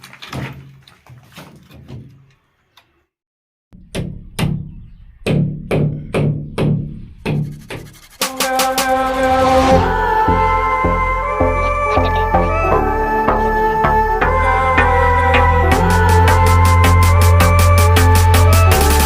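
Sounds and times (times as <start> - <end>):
background music with drums: 8.2 - 9.9, 15.4 - 19.0
steady drum hits: 8.2 - 10.0.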